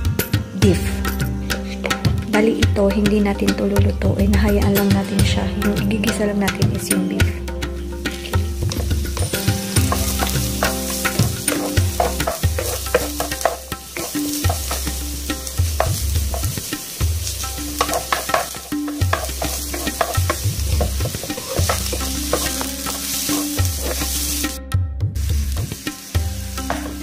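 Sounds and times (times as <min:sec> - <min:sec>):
onion and garlic sizzling in oil: 0:07.6 - 0:24.6, 0:25.2 - 0:27.0
spatula scraping and tapping pan: 0:08.0 - 0:24.6, 0:26.6 - 0:27.0.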